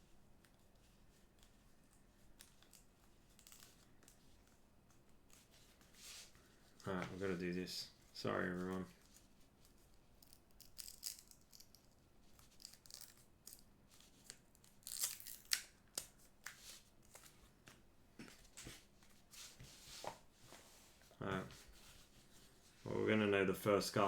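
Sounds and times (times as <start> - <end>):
packaging tearing and crinkling: 14.6 - 15.7.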